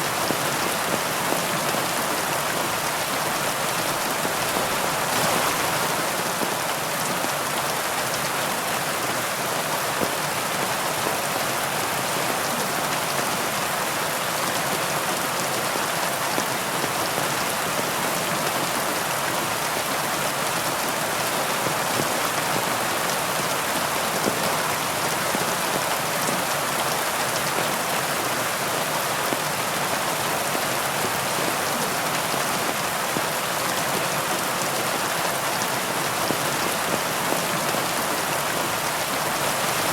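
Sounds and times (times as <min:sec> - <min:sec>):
heavy rain hissing: 0:00.0 - 0:09.2.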